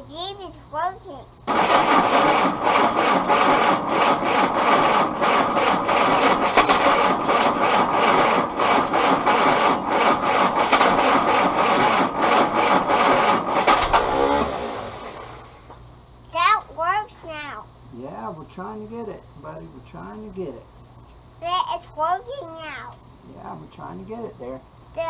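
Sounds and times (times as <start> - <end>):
engine turning over roughly: 1.5 - 15.7.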